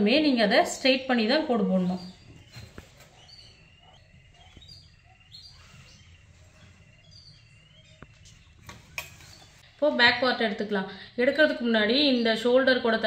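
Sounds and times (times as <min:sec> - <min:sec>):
faint bird chirps: 0:00.6 - 0:09.7.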